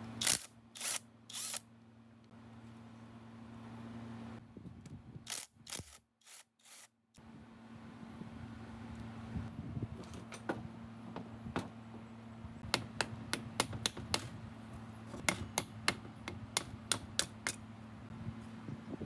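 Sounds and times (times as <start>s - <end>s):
steady low hum: 7.2s - 19.0s.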